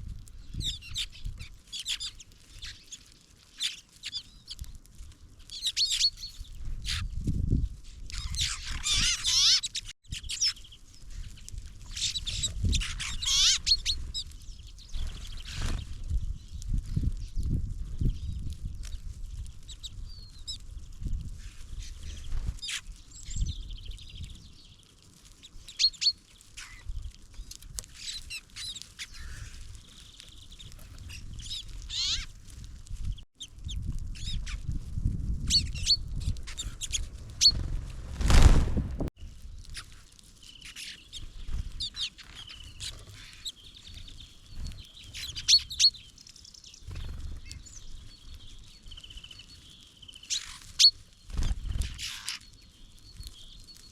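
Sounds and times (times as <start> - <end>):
small songbirds chirping: 0.1 - 4.8, 5.4 - 32.4, 33.0 - 38.5, 39.2 - 53.9
low rumble: 35.5 - 39.1
loud rush of noise: 37.1 - 39.1.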